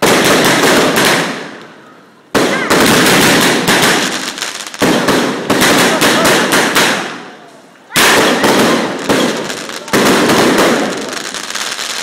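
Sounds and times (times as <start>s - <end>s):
crackling firework reports: 0.0s - 12.0s
loud firework bursts: 0.0s - 12.0s.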